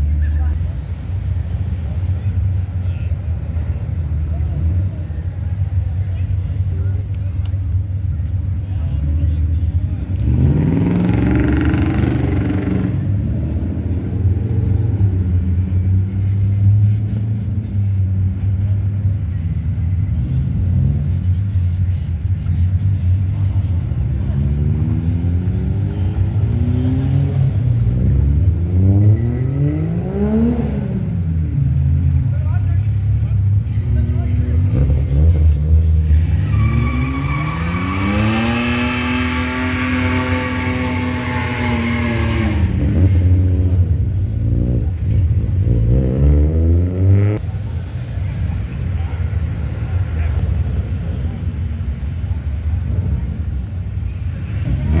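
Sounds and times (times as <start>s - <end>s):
car engine accelerating: 33.0s - 47.5s.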